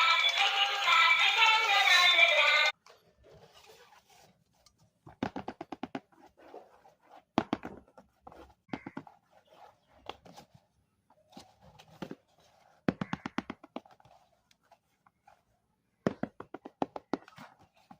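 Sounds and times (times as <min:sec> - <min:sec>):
music with singing: 0:00.0 - 0:02.8
clicks and taps of handling objects: 0:12.8 - 0:14.6.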